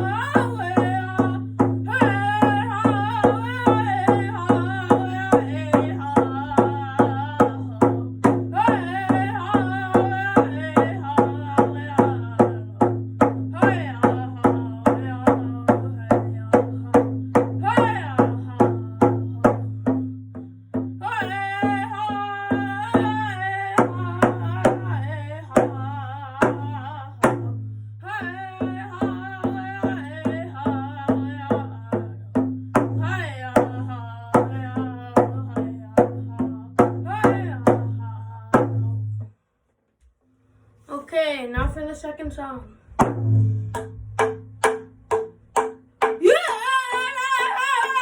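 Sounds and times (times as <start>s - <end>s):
person singing high wavering phrases: 0.0s - 7.8s, 46.2s - 48.0s
drum beating fast: 0.0s - 20.2s, 41.6s - 48.0s.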